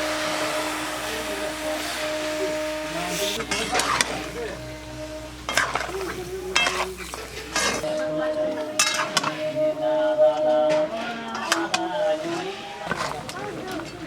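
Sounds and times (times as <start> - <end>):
meat sizzling in a pan: 0.0 - 4.4
metal ladle scraping a pan: 0.0 - 8.0, 8.7 - 9.5, 10.7 - 14.0.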